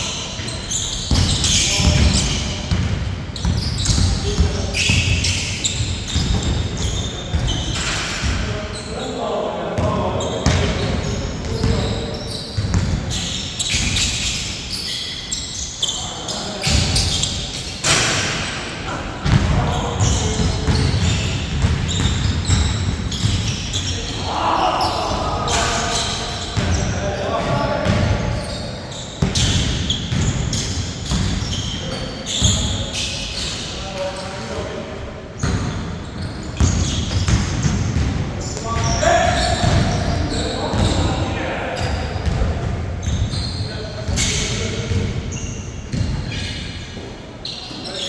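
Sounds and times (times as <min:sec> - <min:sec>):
sneakers squeaking: 0:00.0 - 0:48.0
basketball bouncing on court: 0:00.7 - 0:08.5, 0:09.8 - 0:14.3, 0:19.2 - 0:28.5, 0:29.2 - 0:32.8, 0:35.4 - 0:41.2, 0:41.8 - 0:46.5
players calling out: 0:18.9 - 0:29.5.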